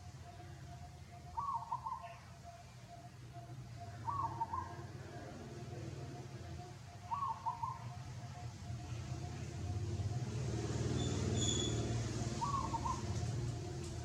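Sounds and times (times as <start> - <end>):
vehicle passing by: 8.3 - 14.0.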